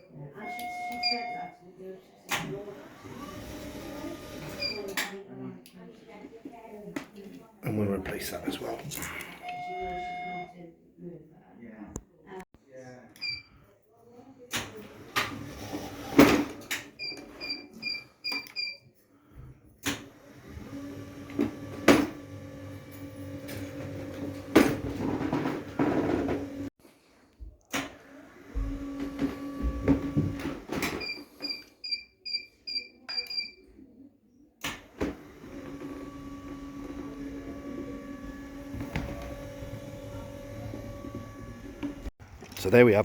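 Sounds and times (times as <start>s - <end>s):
stairlift motor humming: 35.2s - 42.1s.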